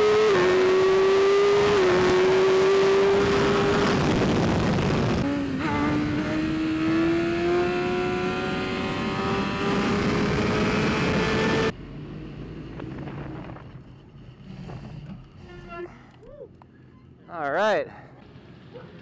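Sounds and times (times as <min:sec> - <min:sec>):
racing motorcycle engine revving: 0:00.0 - 0:13.6.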